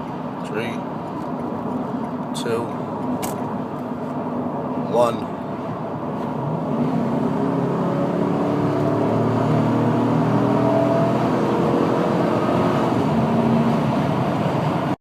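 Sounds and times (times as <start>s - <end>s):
truck engine at full throttle: 6.4s - 15.0s.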